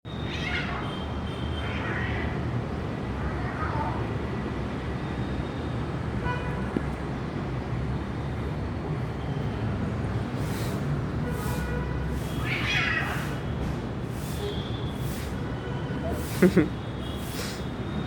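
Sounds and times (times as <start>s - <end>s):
street traffic: 0.1s - 18.0s
cat yowling: 0.2s - 1.0s, 1.6s - 2.5s, 3.2s - 4.0s, 12.3s - 13.4s.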